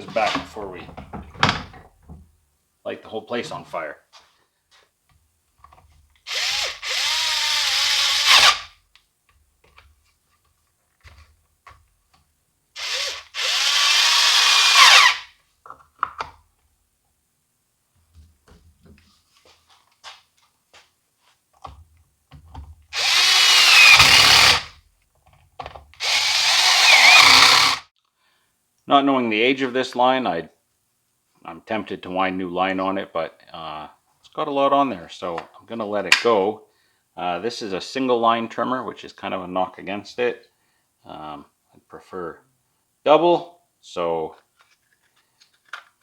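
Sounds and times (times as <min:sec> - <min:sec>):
two-stroke trimmer engine revving: 0:26.0 - 0:27.8.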